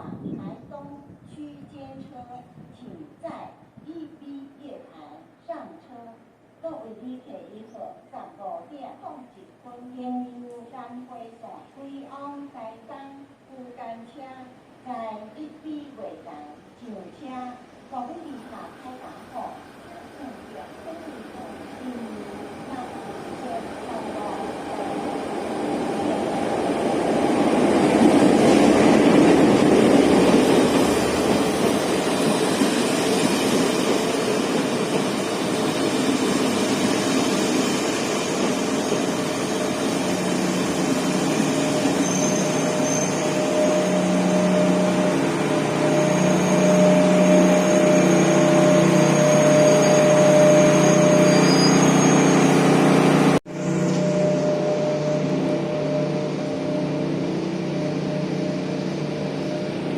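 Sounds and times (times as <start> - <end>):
diesel train running: 18.6 - 59.9
high steady tone: 21.4 - 59.9.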